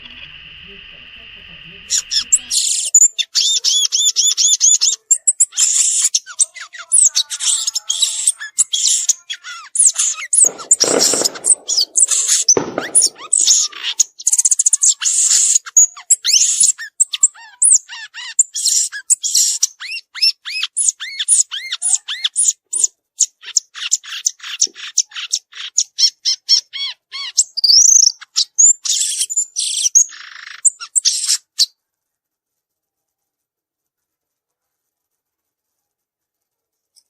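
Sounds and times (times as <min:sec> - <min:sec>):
bird singing chirping notes: 0:01.9 - 0:14.6.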